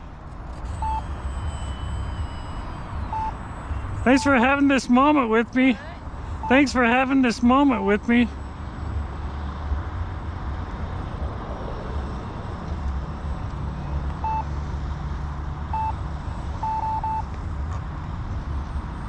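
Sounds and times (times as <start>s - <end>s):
short electronic beeps: 0.6s - 5.6s, 6.2s - 7.9s, 14.2s - 14.5s, 15.7s - 16.0s, 16.6s - 17.3s.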